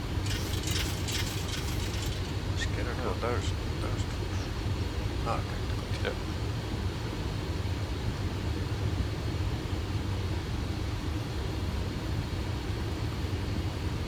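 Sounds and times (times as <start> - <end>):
cockpit low rumble and air noise: 0.0 - 8.7.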